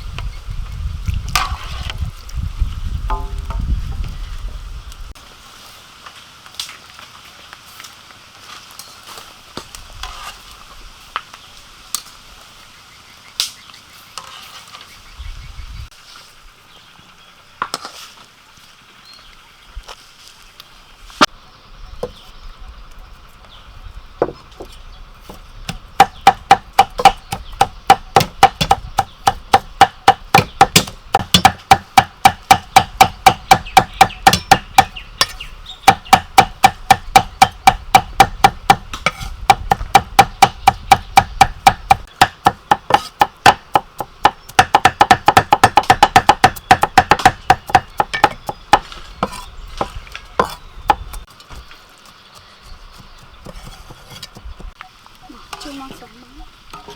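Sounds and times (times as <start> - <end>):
knife chopping on cutting board: 35.9 - 51.0.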